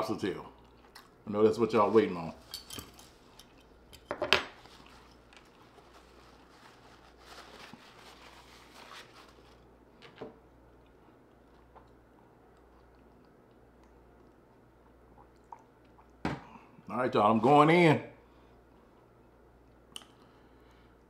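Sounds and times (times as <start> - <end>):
chewing with closed mouth: 0.5 - 1.2, 10.7 - 16.2.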